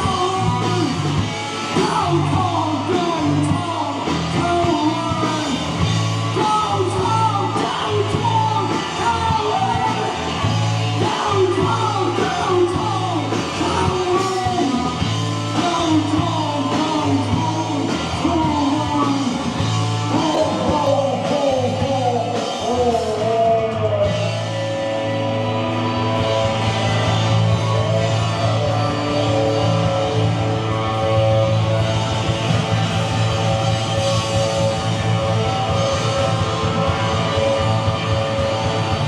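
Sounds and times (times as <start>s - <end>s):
person singing: 0.0s - 26.8s
live rock band playing: 0.0s - 39.0s.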